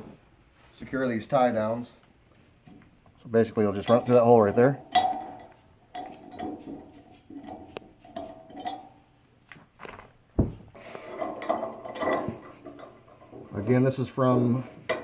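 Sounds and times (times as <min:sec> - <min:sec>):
loud metal knock: 0:10.4 - 0:10.7.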